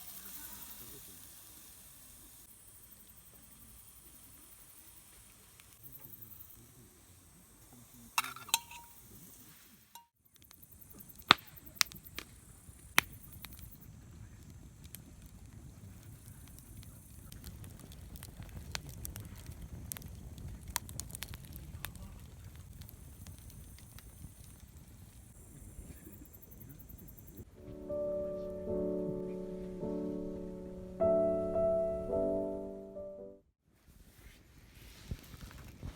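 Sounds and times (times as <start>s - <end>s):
campfire crackling and popping: 0.2s - 30.8s.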